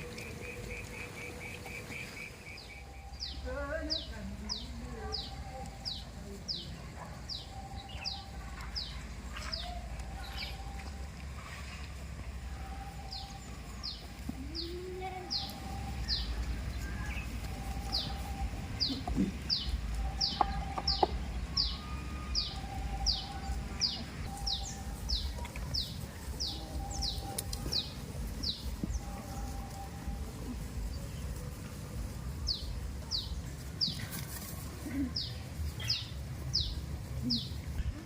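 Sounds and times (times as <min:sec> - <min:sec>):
bird calling high sliding notes: 0:07.4 - 0:30.5.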